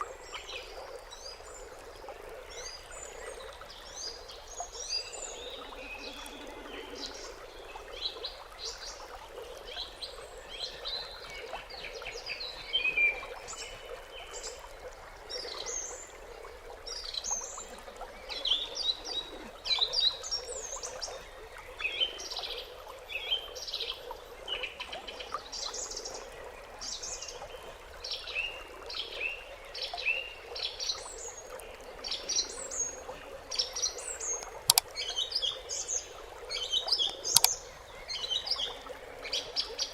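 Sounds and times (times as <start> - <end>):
birds chirping: 4.1 - 8.9, 33.6 - 38.9.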